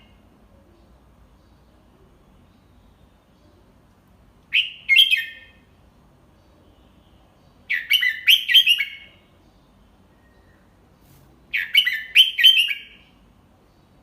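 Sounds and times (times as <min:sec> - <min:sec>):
bird whistled song: 0:04.5 - 0:05.7, 0:07.7 - 0:09.3, 0:11.5 - 0:13.2.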